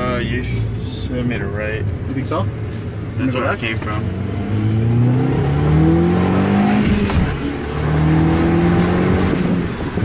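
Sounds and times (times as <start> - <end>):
car engine accelerating hard: 3.3 - 10.0.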